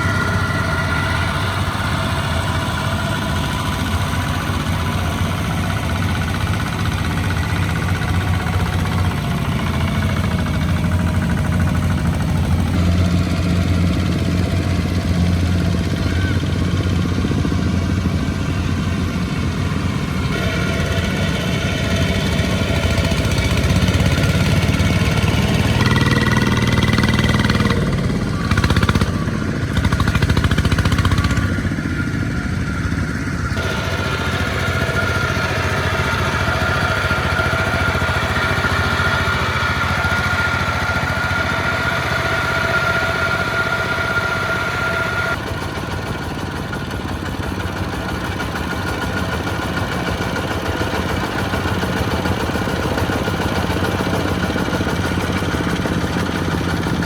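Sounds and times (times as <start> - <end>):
high whine: 0.0 - 14.0
tractor engines running: 0.0 - 57.0.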